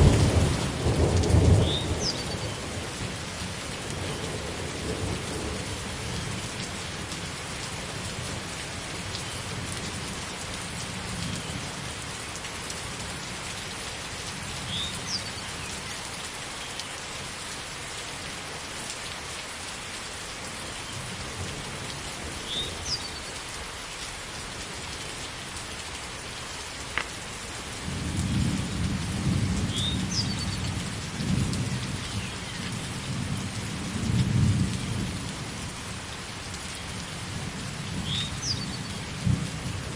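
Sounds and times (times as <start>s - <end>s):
thunder rumbling: 0.0s - 3.2s
heavy rain falling: 0.0s - 39.9s.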